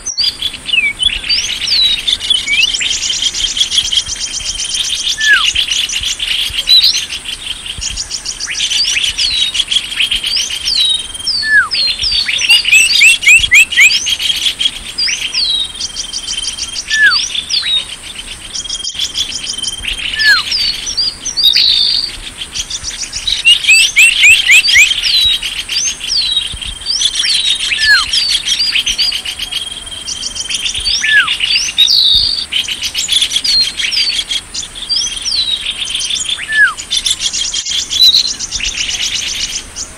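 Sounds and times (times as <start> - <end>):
songbirds chirping and trilling: 0.0 - 39.9
short falling whistles: 16.9 - 17.2, 36.4 - 36.8.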